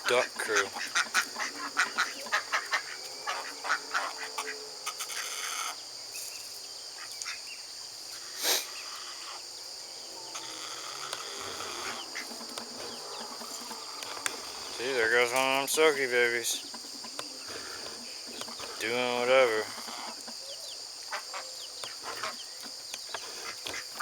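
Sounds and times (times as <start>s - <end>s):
ducks quacking: 0.0s - 5.8s, 10.3s - 20.4s, 21.1s - 22.5s, 23.2s - 24.0s
high insect drone: 0.0s - 24.0s.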